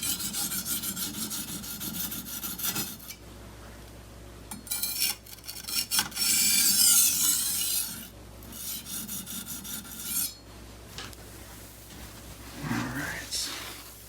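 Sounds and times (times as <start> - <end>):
knife scraping on whetstone: 0.0 - 3.2, 4.5 - 10.4.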